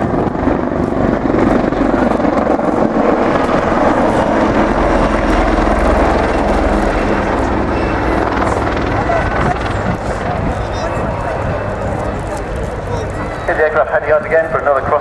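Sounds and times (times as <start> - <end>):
helicopter rotor and engine noise: 0.0 - 15.0.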